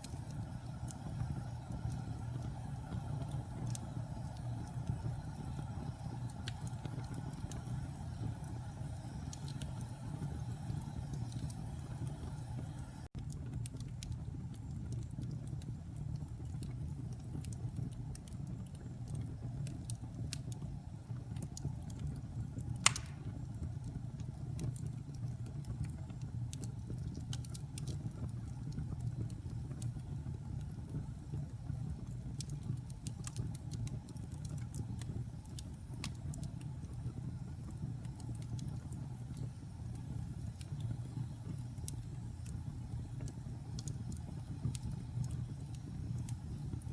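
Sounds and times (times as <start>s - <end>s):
low rumble of flames: 0.0s - 46.9s
wood fire crackles: 0.0s - 46.9s
sharp pop of fire: 22.8s - 23.5s.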